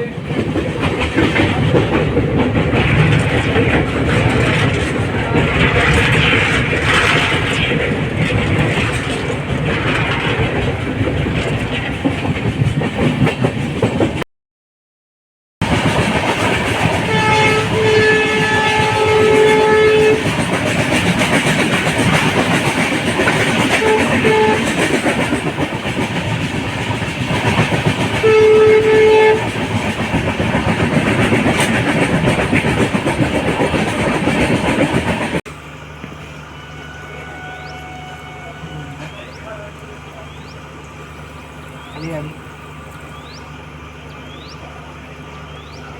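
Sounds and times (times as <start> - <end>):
train rail and wheel noise: 0.0 - 14.2, 15.6 - 45.9
train horn blasts: 17.0 - 20.4, 23.5 - 25.1, 28.2 - 29.7, 36.2 - 39.8.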